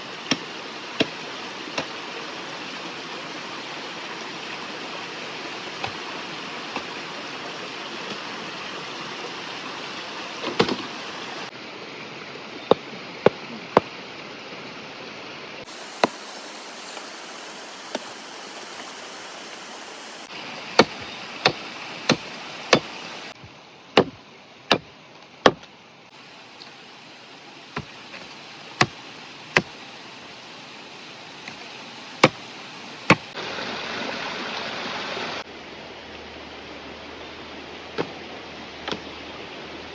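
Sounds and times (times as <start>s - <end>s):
river rushing: 15.7s - 20.5s.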